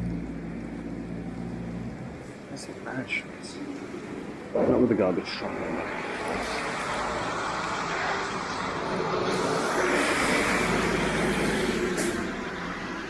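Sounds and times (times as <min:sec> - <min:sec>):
vehicle passing on wet road: 0:05.3 - 0:13.0.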